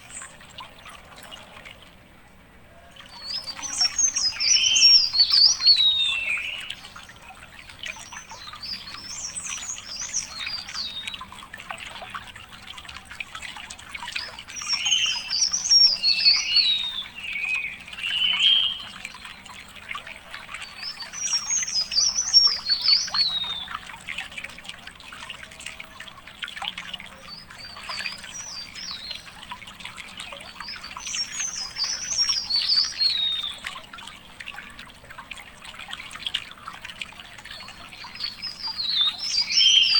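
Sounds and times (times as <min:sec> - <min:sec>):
faint water trickle: 0:00.0 - 0:39.9
songbird singing: 0:02.7 - 0:11.4, 0:14.0 - 0:24.2, 0:26.9 - 0:34.1, 0:37.1 - 0:39.9.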